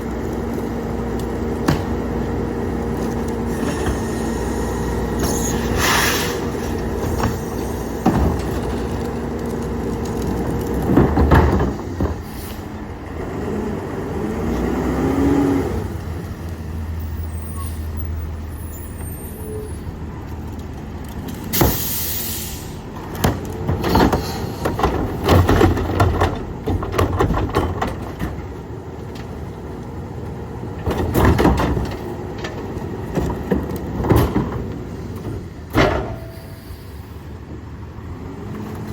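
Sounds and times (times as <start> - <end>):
garbage truck engine and hydraulics: 0.0 - 38.9
bangs and clatters of carts: 1.2 - 2.2, 2.9 - 13.5, 20.4 - 29.5, 30.6 - 37.0
air hiss burst: 5.4 - 6.6, 21.5 - 22.8.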